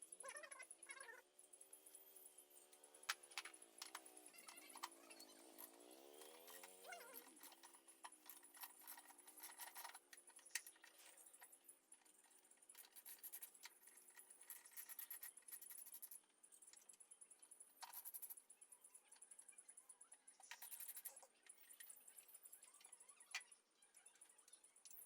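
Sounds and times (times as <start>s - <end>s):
metallic clinking and rattling: 3.3s - 16.2s.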